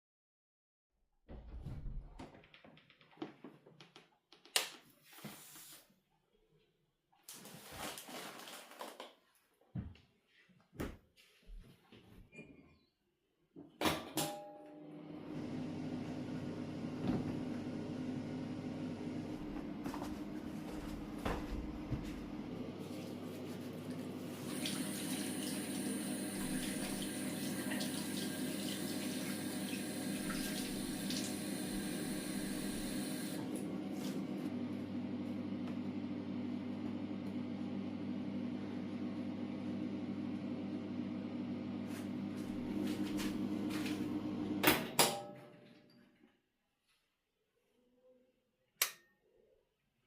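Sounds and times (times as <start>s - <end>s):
tap water running into sink: 24.3s - 33.4s.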